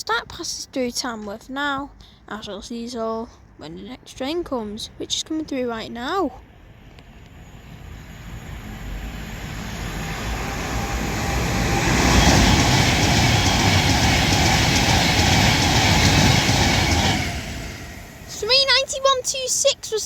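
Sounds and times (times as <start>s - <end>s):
electric train passing at speed: 5.6s - 20.0s.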